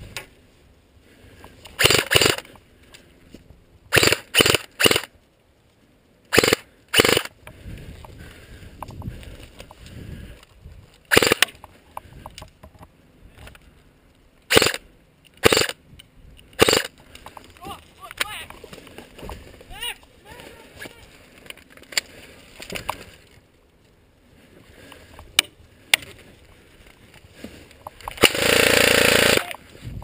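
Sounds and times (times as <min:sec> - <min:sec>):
airsoft rifle firing bursts: 0:01.8 - 0:02.4, 0:03.9 - 0:05.1, 0:06.3 - 0:07.3, 0:11.1 - 0:11.5, 0:14.5 - 0:14.8, 0:15.4 - 0:15.8, 0:16.6 - 0:16.9, 0:28.2 - 0:29.6.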